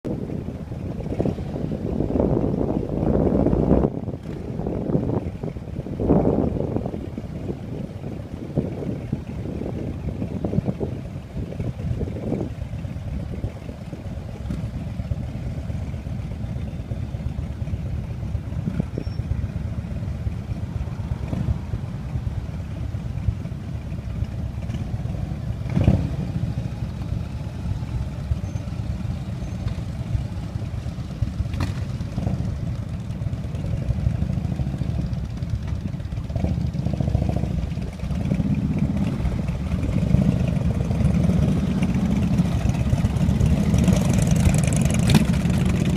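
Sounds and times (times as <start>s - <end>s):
motorcycle engines rumbling: 0.0s - 45.9s.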